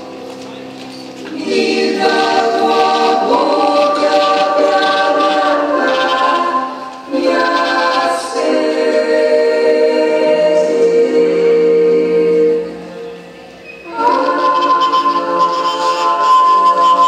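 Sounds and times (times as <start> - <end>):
choir singing a cappella: 1.3 - 17.0.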